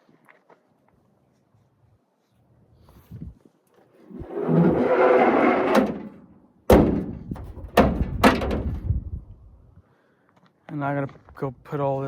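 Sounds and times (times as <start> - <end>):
rustling and scraping: 2.2 - 9.0
sharp bangs: 5.5 - 8.9.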